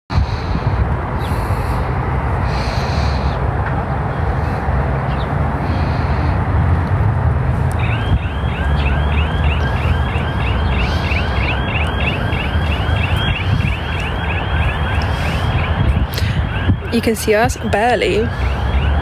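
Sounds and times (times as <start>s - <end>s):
car alarm chirping: 7.8s - 19.0s.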